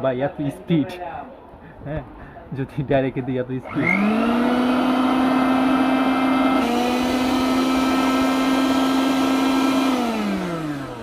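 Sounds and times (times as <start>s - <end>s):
mixer grinder motor whining: 3.6s - 11.0s.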